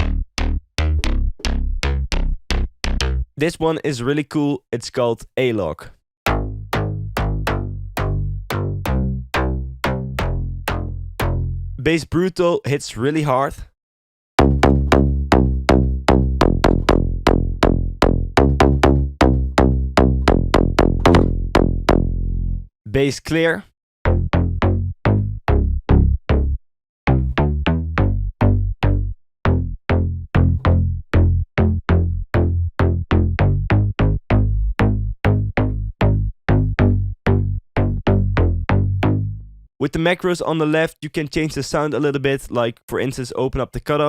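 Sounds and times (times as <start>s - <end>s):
punchy synth bass riff: 0.0s - 3.4s, 6.3s - 11.8s, 14.4s - 22.7s, 24.1s - 39.6s.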